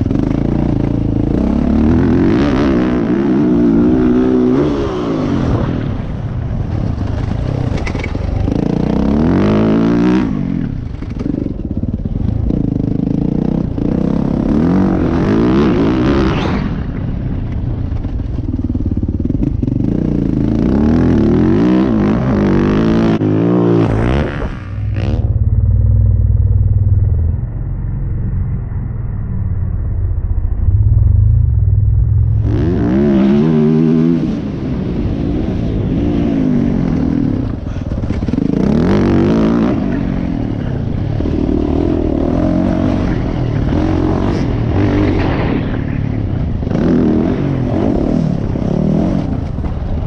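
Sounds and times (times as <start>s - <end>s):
dirt bike engine revving: 0.0s - 16.9s, 18.4s - 25.9s, 32.2s - 49.9s
engine clatter: 5.7s - 9.2s
muffled low rumble: 21.9s - 50.0s.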